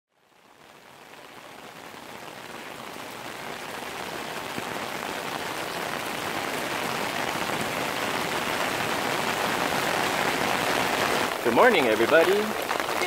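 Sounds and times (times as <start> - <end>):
heavy rain on pavement: 0.1 - 13.0.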